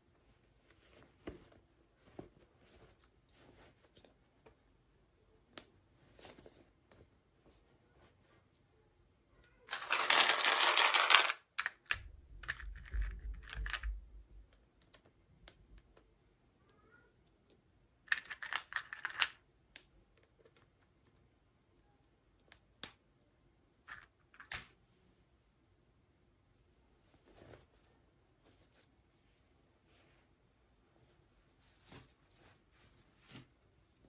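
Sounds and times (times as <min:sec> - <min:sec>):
plastic packaging rustling: 0:09.7 - 0:11.3.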